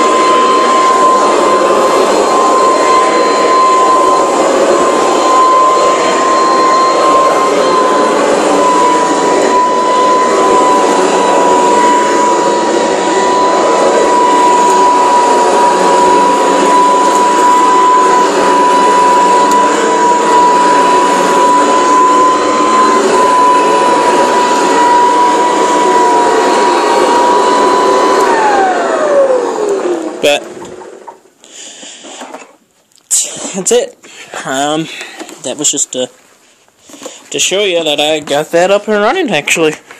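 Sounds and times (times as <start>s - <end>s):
motor winding down: 0.0s - 30.9s
vacuum cleaner motor whine: 0.0s - 32.4s.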